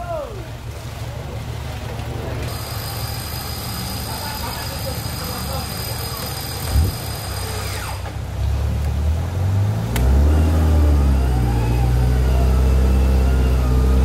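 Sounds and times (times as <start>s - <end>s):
off-road vehicle engine revving: 0.6s - 14.0s
sharp click: 9.9s - 10.1s.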